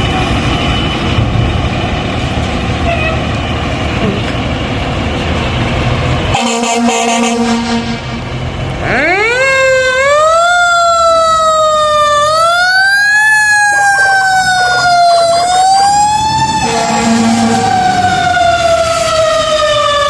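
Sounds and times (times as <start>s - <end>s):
fire truck air horn: 2.8s - 3.4s, 6.3s - 9.3s, 13.5s - 19.6s
siren wailing: 8.8s - 20.0s.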